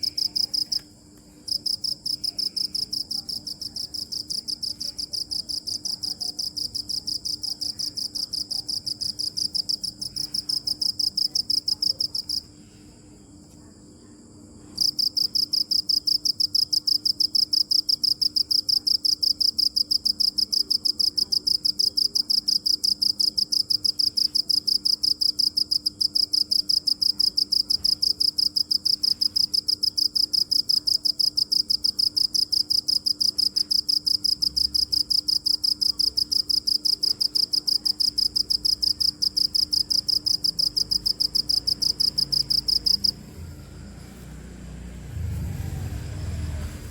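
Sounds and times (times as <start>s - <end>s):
cricket chirping: 0.0s - 0.9s, 1.5s - 44.0s
faint low hum: 31.7s - 46.9s.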